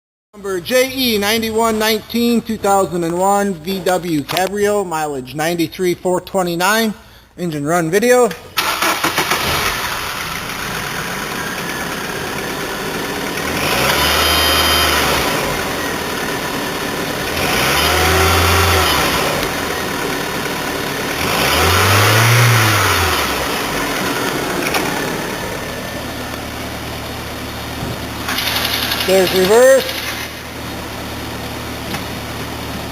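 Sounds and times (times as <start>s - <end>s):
car engine idling and revving: 8.5s - 32.9s.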